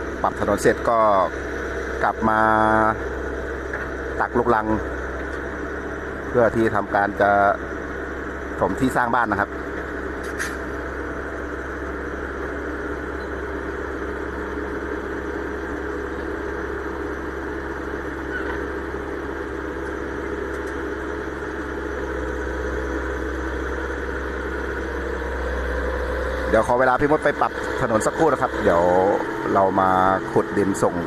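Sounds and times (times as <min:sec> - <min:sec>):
excavator diesel engine running: 0:00.0 - 0:31.0
excavator scooping soil: 0:10.2 - 0:10.7.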